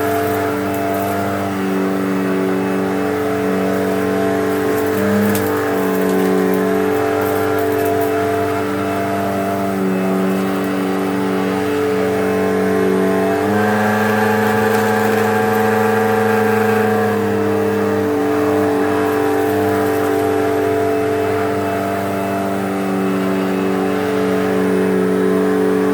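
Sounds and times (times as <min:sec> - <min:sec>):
vacuum cleaner motor humming: 0:00.0 - 0:25.9.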